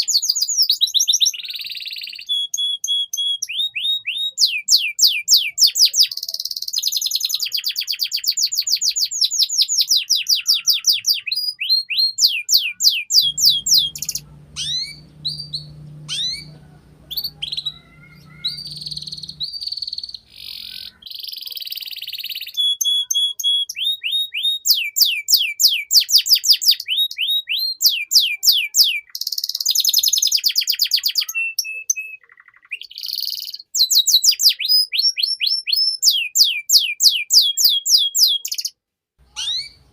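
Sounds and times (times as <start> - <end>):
canary singing trills: 0.0 - 39.9
faint low hum: 13.2 - 20.9.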